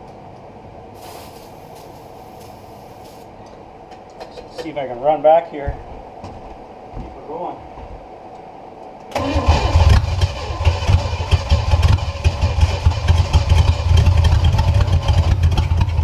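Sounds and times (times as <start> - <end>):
engine ticking and popping: 9.2 - 16.0.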